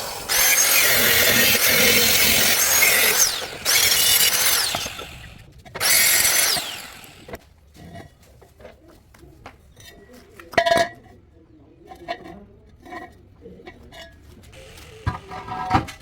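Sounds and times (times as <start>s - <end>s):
power tool motor whining: 0.0s - 7.4s, 14.6s - 15.9s.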